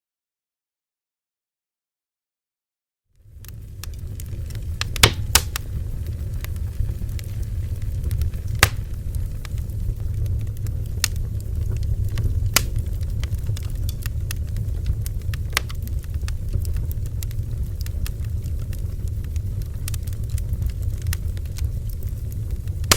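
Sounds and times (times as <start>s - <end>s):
bonfire crackling and popping: 3.2s - 22.9s
low rumble: 3.3s - 22.9s.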